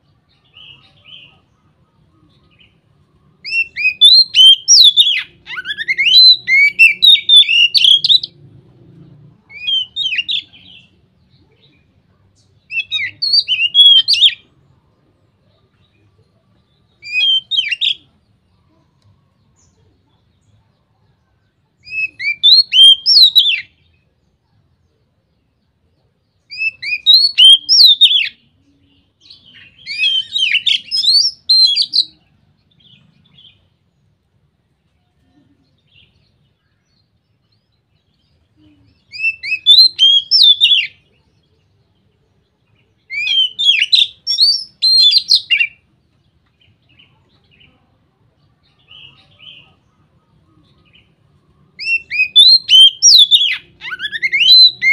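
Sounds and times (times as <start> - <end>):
bird singing whistled notes: 2.2 - 8.4, 9.5 - 14.5, 15.7 - 18.2, 21.8 - 24.1, 26.2 - 33.6, 35.7 - 46.0, 50.5 - 54.9.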